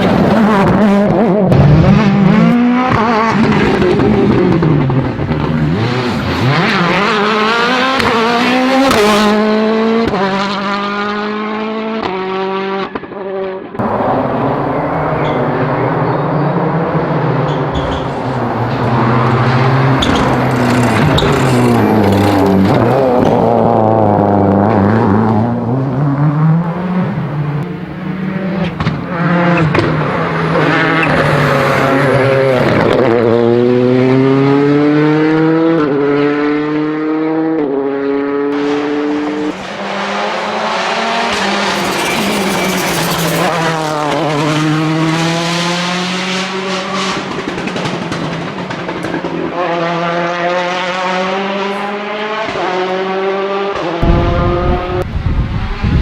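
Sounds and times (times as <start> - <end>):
rally car engines revving: 0.0 - 56.0
anti-lag bangs: 54.0 - 55.5.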